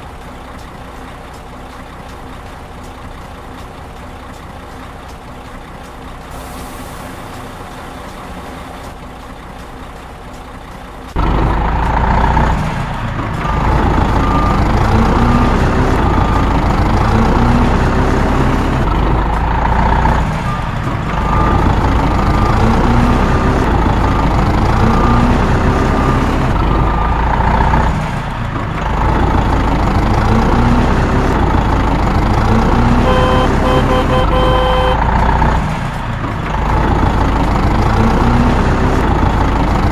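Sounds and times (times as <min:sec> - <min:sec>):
heavy truck engine pulling away: 0:00.0 - 0:39.9
pulsing beep: 0:33.0 - 0:35.0.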